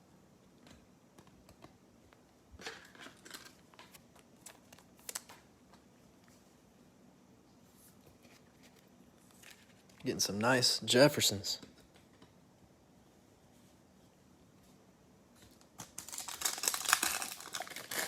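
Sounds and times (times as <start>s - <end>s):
trading cards being handled: 2.7s - 5.8s.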